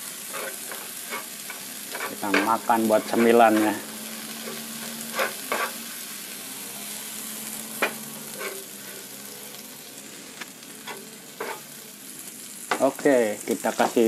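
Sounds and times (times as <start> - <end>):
crickets sizzling in a pan: 0.0 - 14.0
wooden spatula scraping a pan: 0.2 - 3.8, 4.4 - 5.9, 7.8 - 9.0, 10.9 - 11.7.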